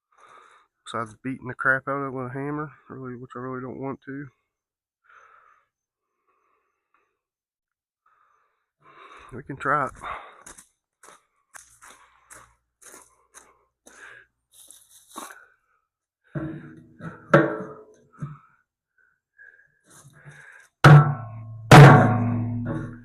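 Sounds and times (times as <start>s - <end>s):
hammer ringing on steel: 20.9s - 23.0s.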